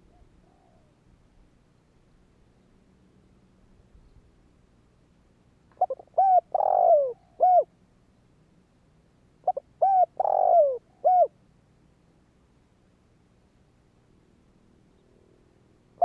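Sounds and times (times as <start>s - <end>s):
dove cooing: 0.0s - 0.9s, 5.8s - 7.7s, 9.5s - 11.3s.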